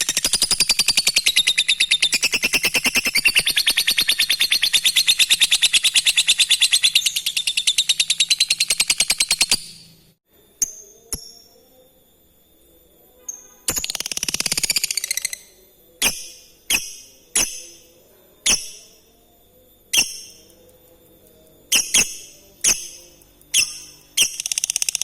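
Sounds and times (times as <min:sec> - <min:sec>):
lovebird chattering: 0:00.0 - 0:10.1, 0:21.7 - 0:25.0
single high bird chirps: 0:21.7 - 0:25.0.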